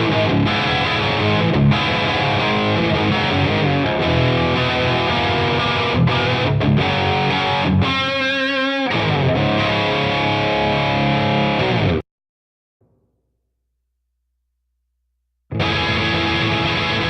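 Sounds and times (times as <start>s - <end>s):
distorted electric guitar riffs: 0.0s - 12.0s, 15.5s - 17.0s.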